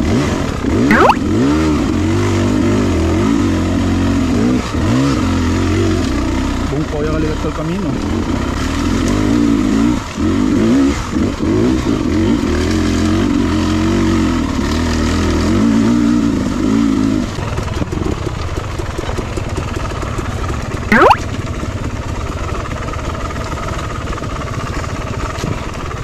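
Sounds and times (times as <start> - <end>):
dirt bike engine revving: 0.0 - 6.7.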